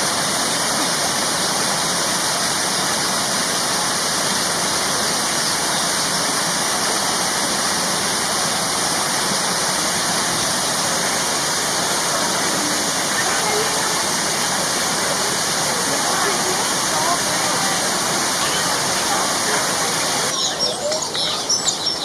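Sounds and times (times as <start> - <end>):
falling water rushing: 0.0 - 20.4.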